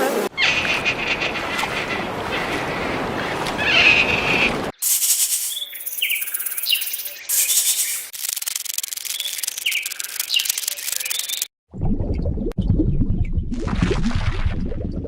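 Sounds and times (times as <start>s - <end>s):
small birds chirping: 3.3s - 8.1s, 9.0s - 11.5s
high-pitched insect hiss: 4.8s - 11.4s.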